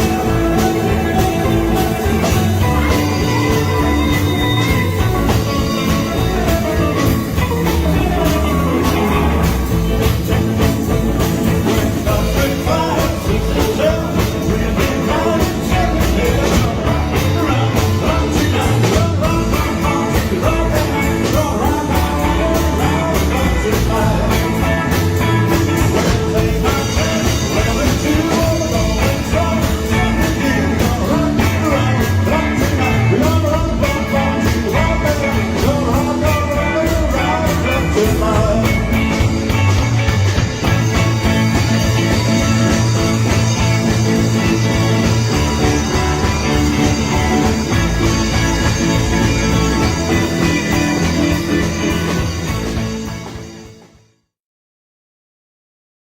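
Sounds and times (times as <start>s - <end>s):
steady drum beat: 0.0s - 53.7s
rock and roll band playing: 0.0s - 54.2s.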